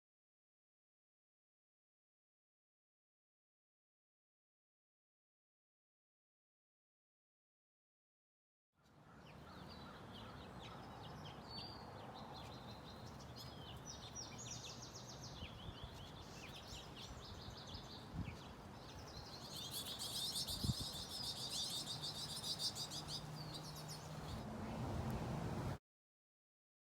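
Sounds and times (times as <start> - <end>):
small birds chirping: 9.1 - 25.8.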